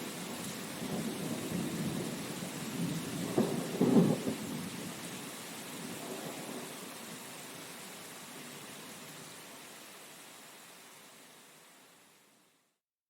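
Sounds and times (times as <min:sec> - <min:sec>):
steady rain hiss: 0:00.0 - 0:12.8
rolling thunder: 0:00.8 - 0:05.0, 0:05.9 - 0:06.8.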